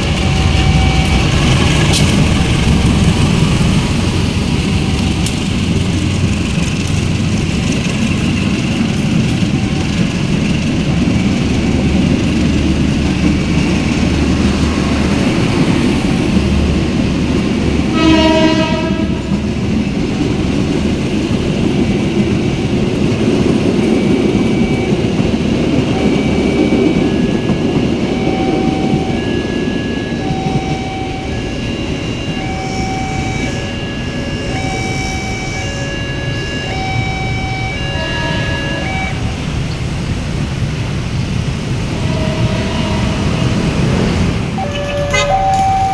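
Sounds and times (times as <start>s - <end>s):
freight train rumbling: 0.0s - 45.9s
locomotive horn: 17.9s - 19.4s, 28.1s - 39.4s, 41.9s - 45.9s
short high repeating tones: 44.6s - 45.9s.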